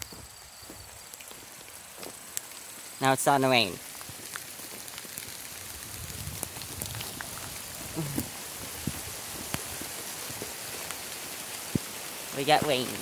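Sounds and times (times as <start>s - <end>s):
light rain hiss: 0.0s - 13.0s
raindrop ticks: 1.0s - 13.0s.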